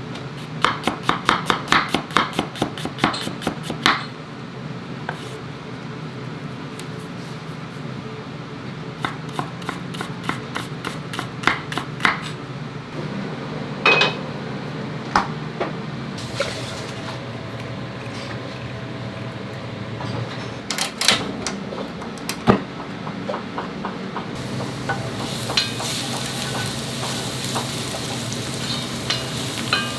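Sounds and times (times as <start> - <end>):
metal cookware knocking and clinking: 29.1 - 29.9.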